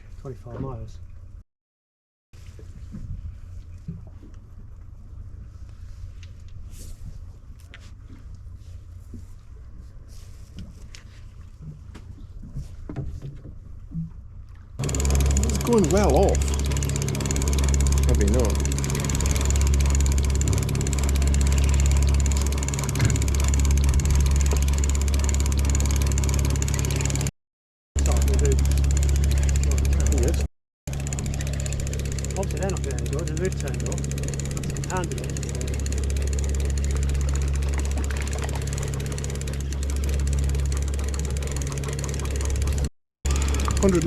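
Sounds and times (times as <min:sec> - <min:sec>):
boat engine humming: 0:14.8 - 0:27.3, 0:28.0 - 0:44.0.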